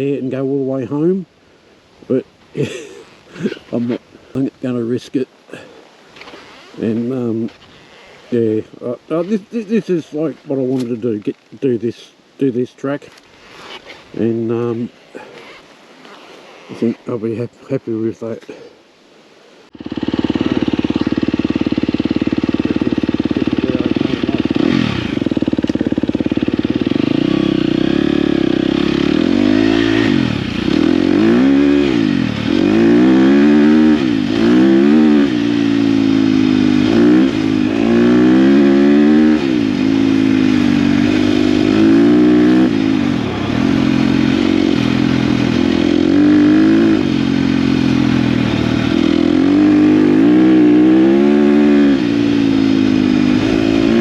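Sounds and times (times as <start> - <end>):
dirt bike engine revving: 19.7 - 54.0.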